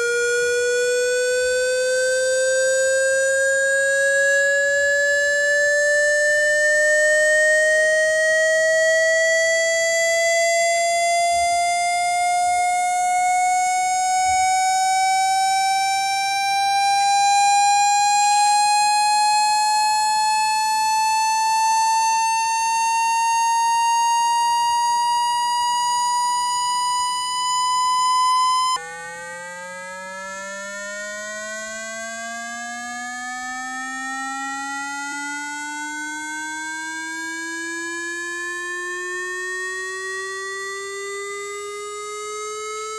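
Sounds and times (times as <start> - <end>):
low electronic tone: 25.1 - 29.2
rising electronic tone: 25.6 - 29.3.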